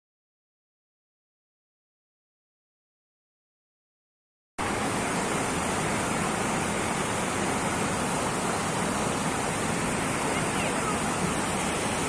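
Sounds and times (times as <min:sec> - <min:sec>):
rushing water: 0:04.6 - 0:12.0.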